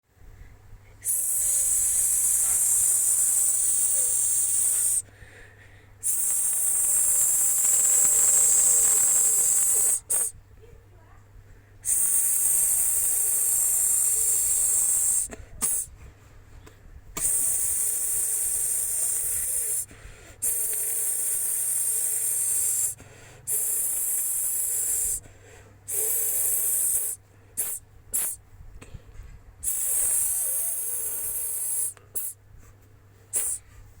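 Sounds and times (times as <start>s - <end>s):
loud snake-like hissing: 1.0s - 5.0s, 6.0s - 10.4s, 11.8s - 15.9s, 17.2s - 25.2s, 25.9s - 28.4s, 29.6s - 32.4s, 33.3s - 33.6s.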